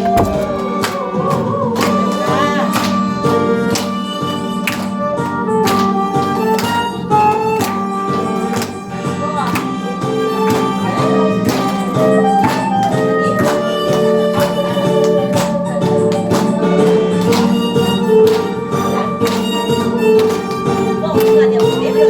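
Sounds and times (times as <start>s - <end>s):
steady drum beat: 0.0s - 2.7s
harmonica melody: 2.1s - 22.0s.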